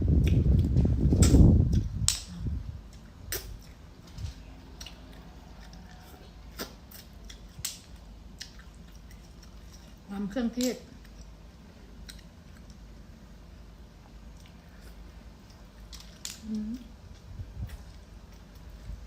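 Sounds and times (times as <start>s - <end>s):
chewing: 4.4s - 10.1s, 10.9s - 12.9s
shellfish shells cracking: 15.5s - 16.4s.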